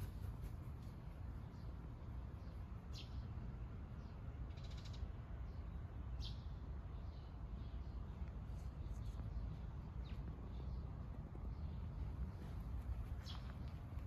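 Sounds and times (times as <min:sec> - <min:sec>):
birds calling: 0:09.9 - 0:14.0.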